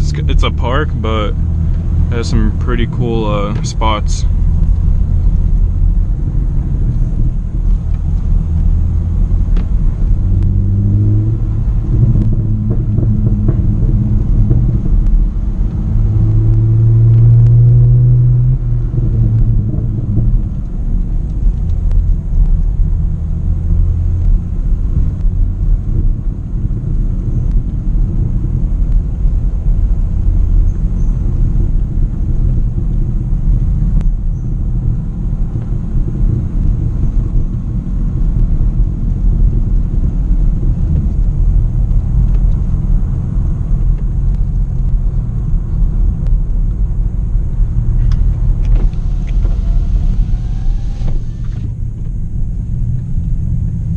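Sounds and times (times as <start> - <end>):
car exhaust droning: 0.0 - 53.9.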